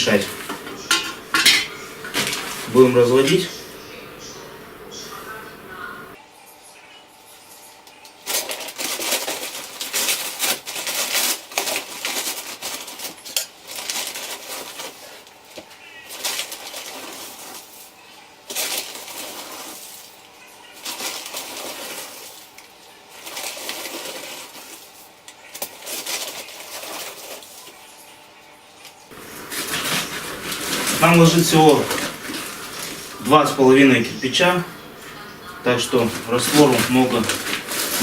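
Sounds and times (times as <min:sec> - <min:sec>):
rustling scraping swishes: 0:00.0 - 0:03.7, 0:29.1 - 0:33.8
knocks of basin: 0:00.4 - 0:02.4.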